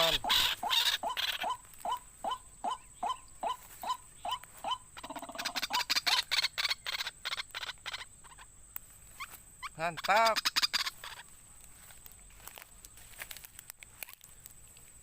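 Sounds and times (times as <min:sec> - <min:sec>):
waterhen croaking calls: 0:00.0 - 0:08.5, 0:09.6 - 0:11.3.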